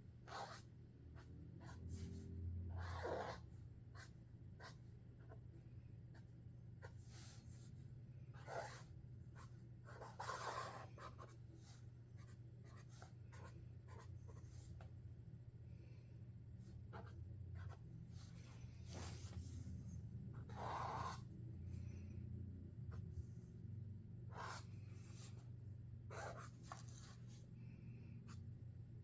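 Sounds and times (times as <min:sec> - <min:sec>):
marker scratching on paper: 0:00.3 - 0:00.6, 0:01.6 - 0:03.4, 0:04.0 - 0:05.4, 0:08.4 - 0:14.8, 0:16.9 - 0:19.6, 0:20.3 - 0:21.3, 0:24.3 - 0:25.4, 0:26.1 - 0:27.3.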